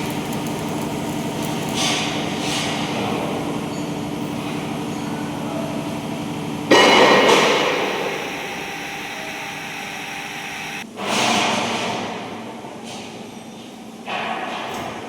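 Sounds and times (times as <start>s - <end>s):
machine humming: 6.7s - 10.8s.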